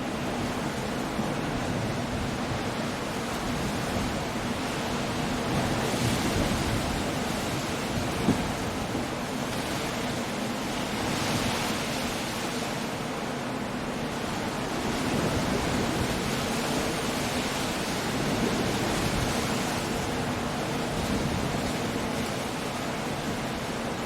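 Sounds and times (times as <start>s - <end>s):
storm surf on rocky coast: 0.0s - 24.0s
wind: 0.0s - 24.0s.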